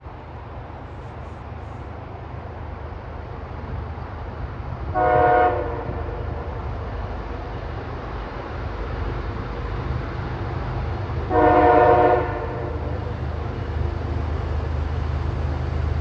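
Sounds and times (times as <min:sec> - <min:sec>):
diesel locomotive rumble: 0:00.0 - 0:16.0
locomotive air horn blast: 0:04.9 - 0:06.5, 0:11.3 - 0:13.0.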